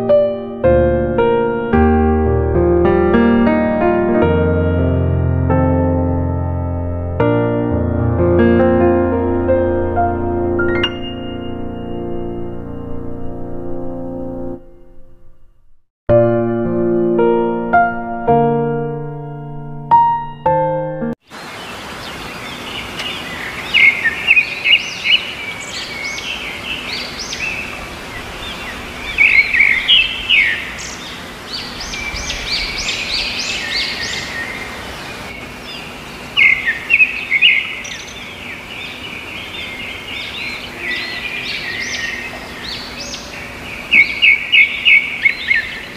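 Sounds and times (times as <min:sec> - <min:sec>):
background hiss: 0:21.3 - 0:45.9
small birds chirping and singing: 0:21.3 - 0:45.9.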